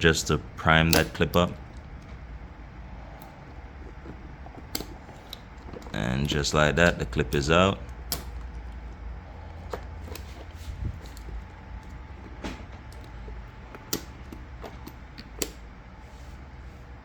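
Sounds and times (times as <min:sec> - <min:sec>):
steady low rumble: 0:00.0 - 0:17.0
screwdriver clicks and taps: 0:00.9 - 0:02.2, 0:03.2 - 0:09.0, 0:09.6 - 0:15.6.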